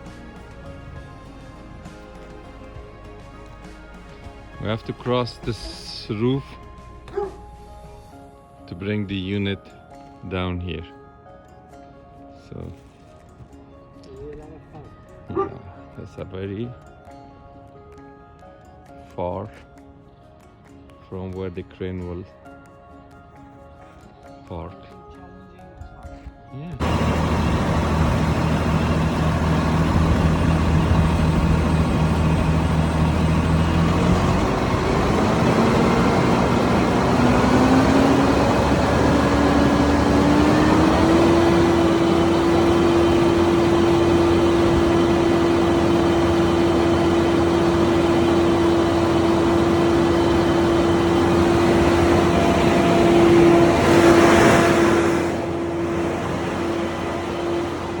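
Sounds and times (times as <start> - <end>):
truck engine revving: 0.0 - 7.8, 26.8 - 58.0.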